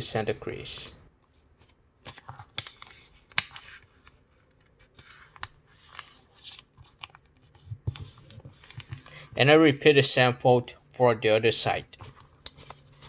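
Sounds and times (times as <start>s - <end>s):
paper rustling: 12.0s - 13.0s.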